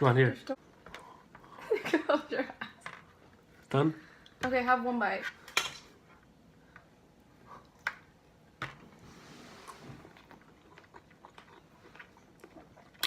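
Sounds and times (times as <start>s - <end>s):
soft chewing: 9.3s - 13.0s.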